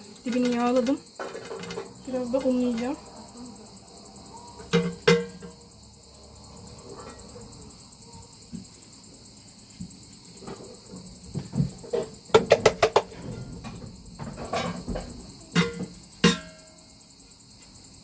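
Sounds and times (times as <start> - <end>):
crickets chirping: 0.0 - 18.0
short ringing knocks: 14.2 - 16.8.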